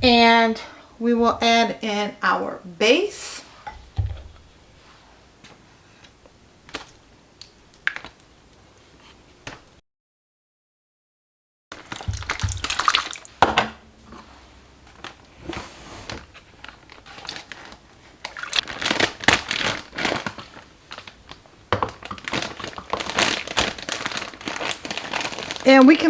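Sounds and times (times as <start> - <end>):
plastic bag crinkling and rustling: 11.7 - 13.4, 14.0 - 26.0.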